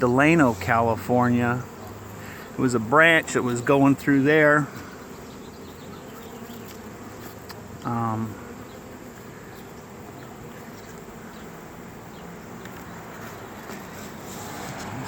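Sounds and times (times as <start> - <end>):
bees buzzing: 0.0 - 15.0
man making wordless sound: 7.8 - 8.4.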